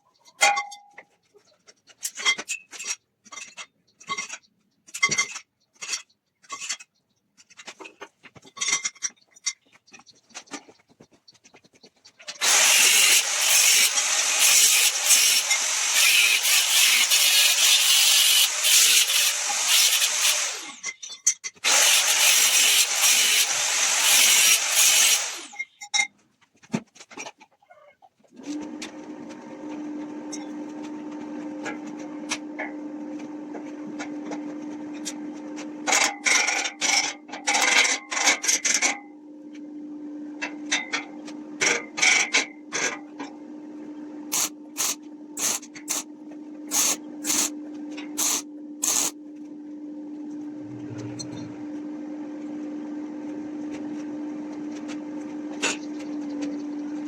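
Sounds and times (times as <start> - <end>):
rasping friction on wood: 12.4 - 20.8, 21.7 - 25.4
steady motor hum: 12.4 - 20.8, 21.6 - 25.6, 43.3 - 57.0.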